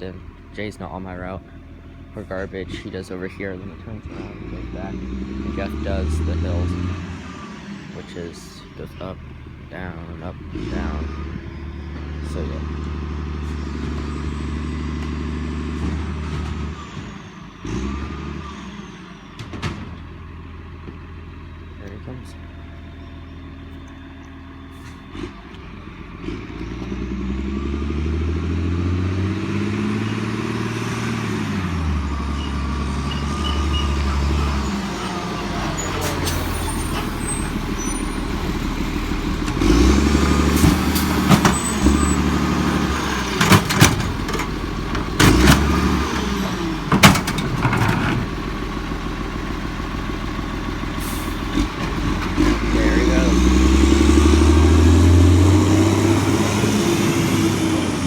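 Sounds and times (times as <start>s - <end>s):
garbage truck diesel engine: 0.0s - 58.0s
sharp bangs: 36.4s - 48.5s.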